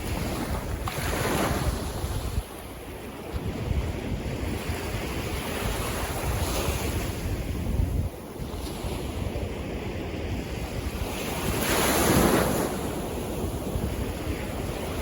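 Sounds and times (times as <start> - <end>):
wind buffeting microphone: 0.0 - 15.0
sea waves washing in: 8.2 - 15.0.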